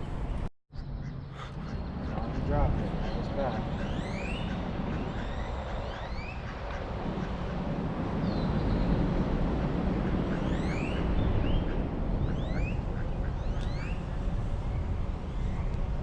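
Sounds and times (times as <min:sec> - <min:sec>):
birds whistled chirps: 0:03.1 - 0:06.4, 0:10.4 - 0:15.8.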